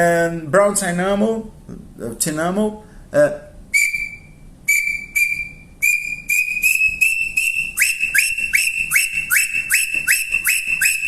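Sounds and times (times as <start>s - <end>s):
wooden bird call whistling: 3.7s - 11.0s.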